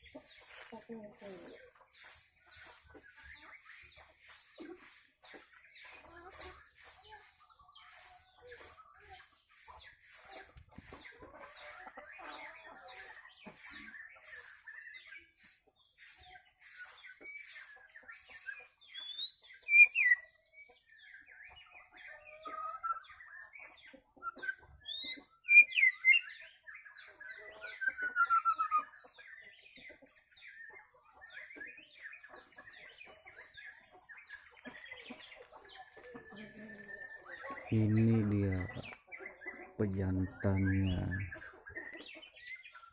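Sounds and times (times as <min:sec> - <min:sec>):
birds chirping and calling: 0:00.0 - 0:42.9
sharp whistled bird calls: 0:13.0 - 0:20.3, 0:24.2 - 0:26.4, 0:27.7 - 0:28.9.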